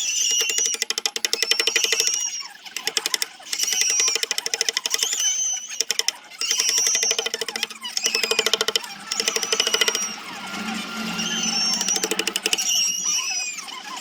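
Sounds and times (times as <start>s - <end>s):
power sander whining: 5.8s - 13.3s.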